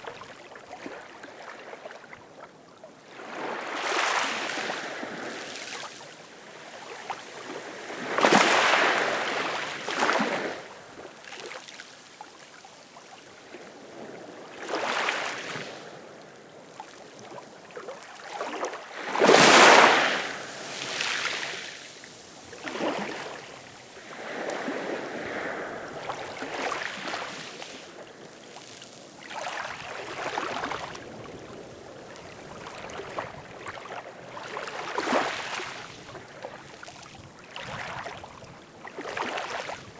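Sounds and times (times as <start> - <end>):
small waves splashing: 3.1 - 11.8, 16.8 - 39.9.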